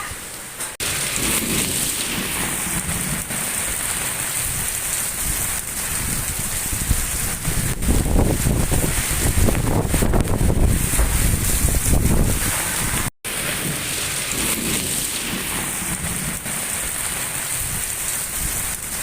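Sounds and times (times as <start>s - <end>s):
heavy rain pouring: 0.0s - 19.0s
wind buffeting microphone: 1.1s - 13.1s.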